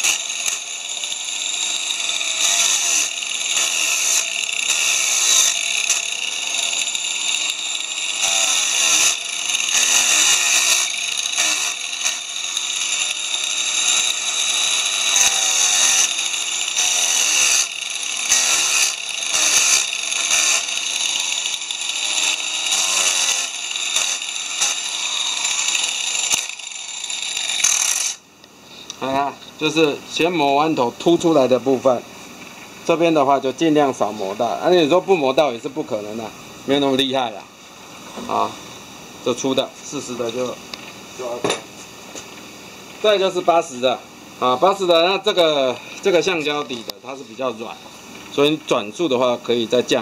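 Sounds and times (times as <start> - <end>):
sanding disc grinding wood: 0.0 - 28.2, 43.0 - 50.0.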